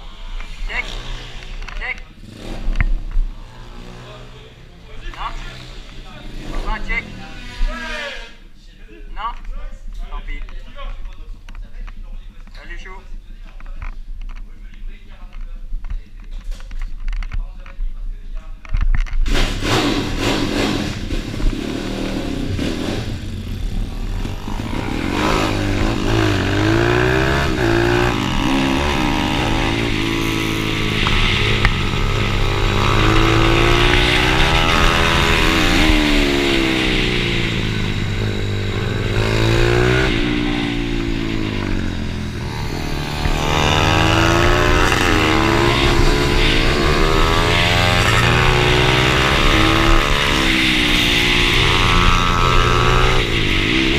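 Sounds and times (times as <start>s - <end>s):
motorbike engine revving: 0.0s - 8.1s, 19.2s - 53.9s.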